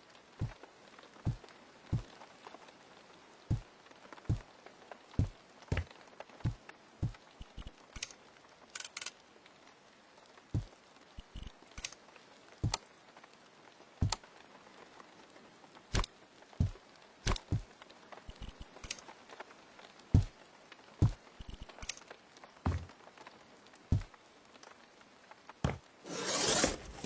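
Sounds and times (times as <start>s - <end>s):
irregular knocks and taps: 5.2s - 7.8s, 10.6s - 11.5s, 14.0s - 14.2s, 16.0s - 17.7s, 20.2s - 20.4s, 21.0s - 21.9s, 22.7s - 22.9s, 23.9s - 24.1s, 25.6s - 25.9s.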